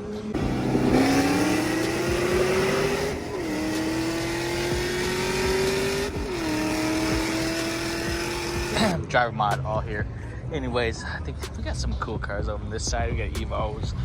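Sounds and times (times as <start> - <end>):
car engine accelerating through gears: 0.4 - 9.0.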